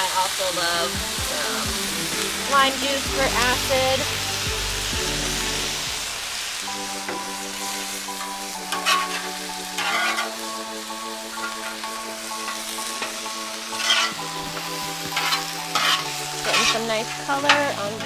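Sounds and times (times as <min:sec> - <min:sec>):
food sizzling on griddle: 0:00.0 - 0:18.0
soft background music: 0:00.0 - 0:18.0
spatula scraping hot steel: 0:08.2 - 0:10.5, 0:11.3 - 0:18.0.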